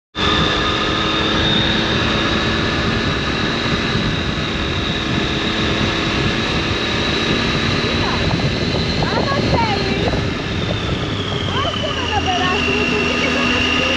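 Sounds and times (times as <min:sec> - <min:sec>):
motorcycle engine droning: 0:00.2 - 0:13.9.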